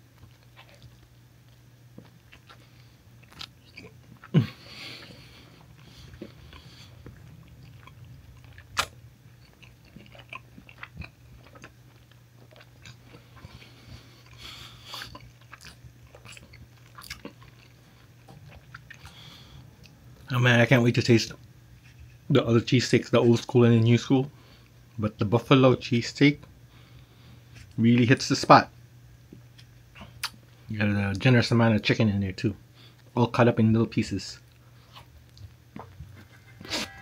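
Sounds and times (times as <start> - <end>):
person chewing and mouth smacks: 0.1 - 20.3, 29.2 - 30.6, 34.4 - 37.0.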